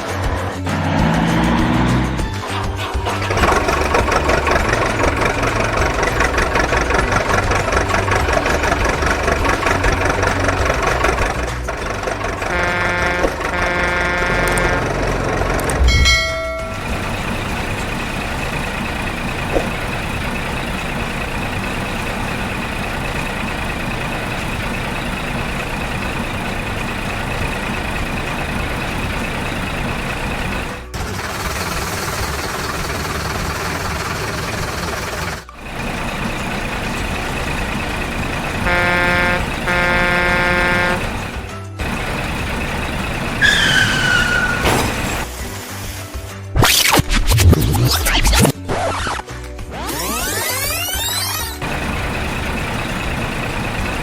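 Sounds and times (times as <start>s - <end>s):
rough rhythmic truck engine: 0.0s - 54.0s
high whine: 0.6s - 21.6s
pitched tones: 3.0s - 20.7s, 35.4s - 41.5s, 46.6s - 51.8s.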